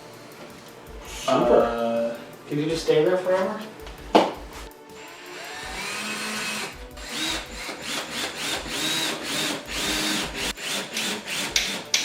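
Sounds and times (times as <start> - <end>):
cordless drill whining: 5.0 - 12.0.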